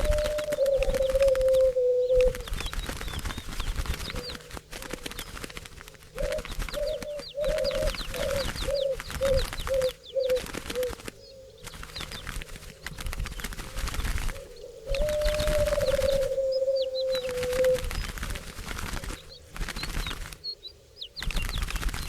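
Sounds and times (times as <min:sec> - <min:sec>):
dove cooing: 0:00.0 - 0:02.8, 0:04.1 - 0:12.9, 0:13.7 - 0:18.4
small birds chirping: 0:00.0 - 0:22.0.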